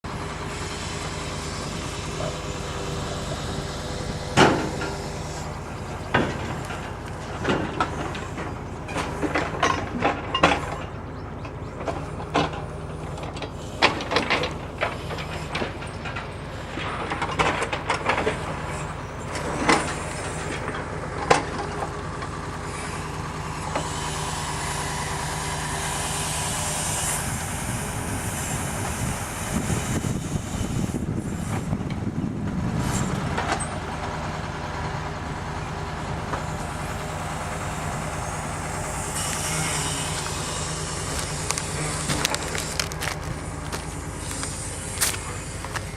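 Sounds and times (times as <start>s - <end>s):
diesel truck engine running: 0.0s - 45.9s
hissing rush: 0.1s - 9.3s, 36.4s - 45.9s.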